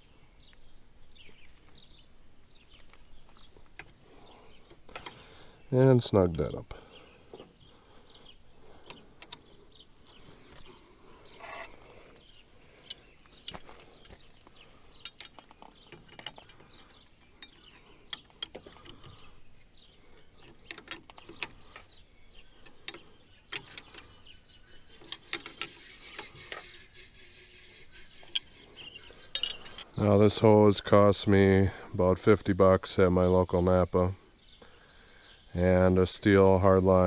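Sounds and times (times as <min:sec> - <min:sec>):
hand tools clinking on metal: 0:11.3 - 0:12.0, 0:14.9 - 0:19.2, 0:22.6 - 0:24.2, 0:25.0 - 0:26.7, 0:29.2 - 0:30.0.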